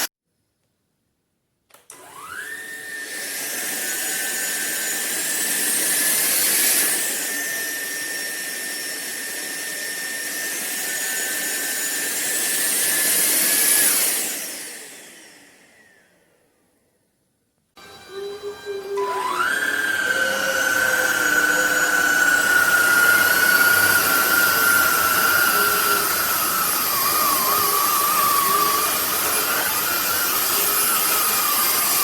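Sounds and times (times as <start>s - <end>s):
stick vacuum motor whining: 1.7s - 16.4s, 17.8s - 32.0s
vacuum airflow rush: 19.3s - 32.0s.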